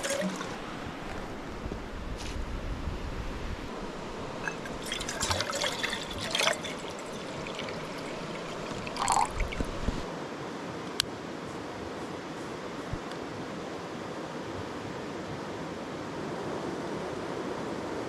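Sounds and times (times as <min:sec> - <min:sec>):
water splashing and sloshing: 0:00.0 - 0:02.4, 0:03.6 - 0:10.1
river water running: 0:00.0 - 0:10.2.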